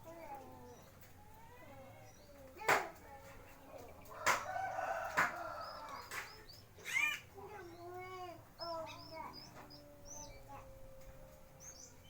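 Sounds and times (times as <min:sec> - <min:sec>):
rooster crowing: 0:04.2 - 0:06.0
small bird chirping: 0:08.6 - 0:10.6.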